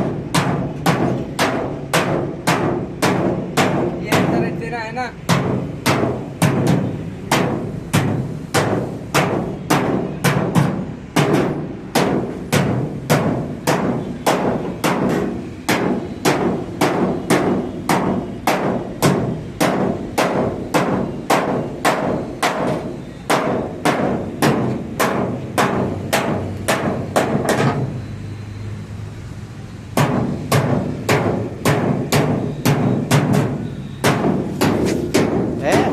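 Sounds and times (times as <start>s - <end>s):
music with percussive beat: 30.0s - 35.9s.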